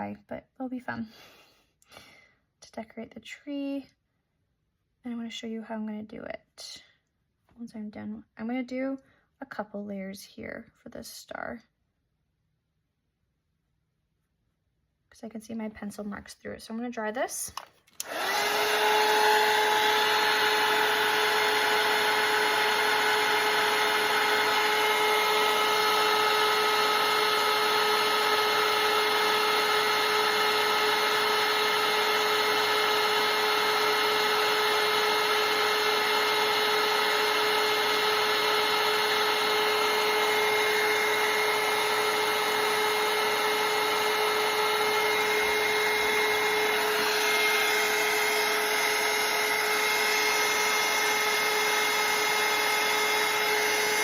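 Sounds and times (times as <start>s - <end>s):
hair dryer running: 17.5s - 54.0s.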